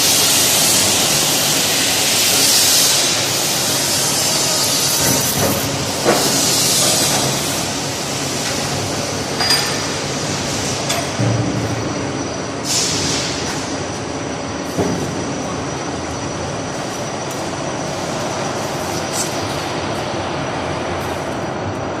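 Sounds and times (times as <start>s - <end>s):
gas burner flame rushing: 0.0s - 14.0s.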